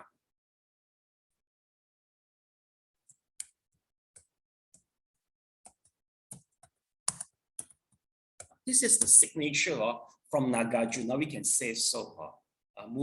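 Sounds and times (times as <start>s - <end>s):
computer keys clicking: 5.7s - 7.8s.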